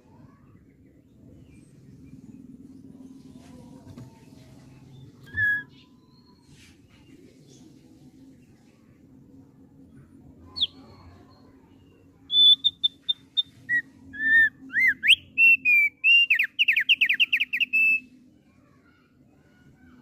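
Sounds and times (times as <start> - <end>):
faint low hum: 0.0 - 20.0
bird singing whistled notes: 4.9 - 6.5, 10.5 - 11.4, 12.3 - 18.1.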